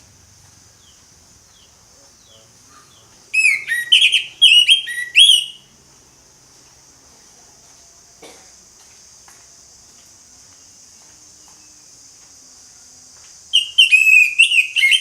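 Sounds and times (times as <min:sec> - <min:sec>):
thrush singing whistled notes: 0:00.8 - 0:05.7, 0:13.5 - 0:15.0.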